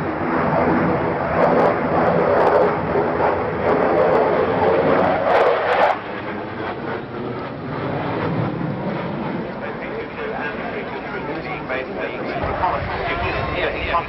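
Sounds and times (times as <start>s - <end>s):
aircraft engine noise: 0.0s - 14.0s.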